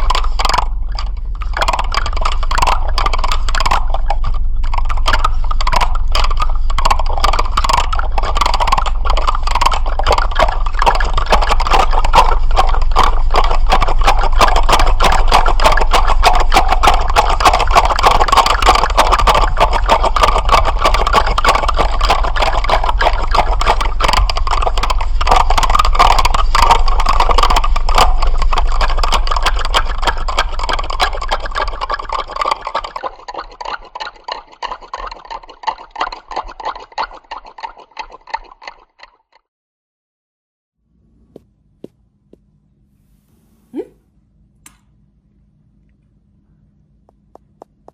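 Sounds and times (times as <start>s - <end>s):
low steady hum: 0.0s - 32.7s, 40.8s - 47.9s
dense rattling clicks: 0.0s - 35.1s.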